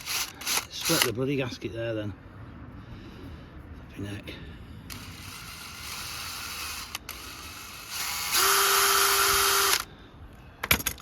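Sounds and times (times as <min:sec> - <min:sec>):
electric drill drilling: 0:00.0 - 0:01.1, 0:04.9 - 0:09.9.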